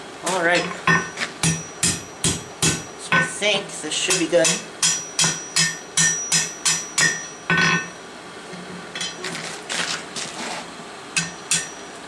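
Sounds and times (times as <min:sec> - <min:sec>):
hammer striking metal on anvil: 0:00.6 - 0:03.4, 0:04.1 - 0:08.0, 0:11.2 - 0:11.9
metal scraping and clinking: 0:09.0 - 0:10.6.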